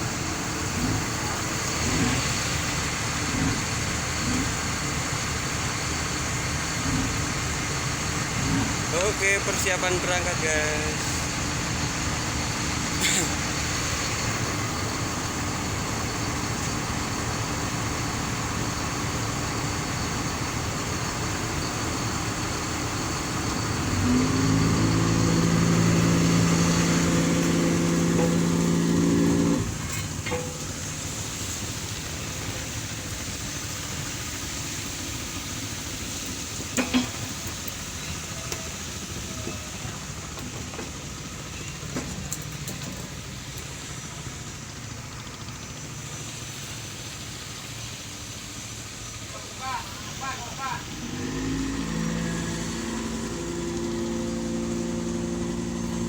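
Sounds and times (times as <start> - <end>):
ship's horn blast: 24.0 - 29.8, 51.0 - 56.0.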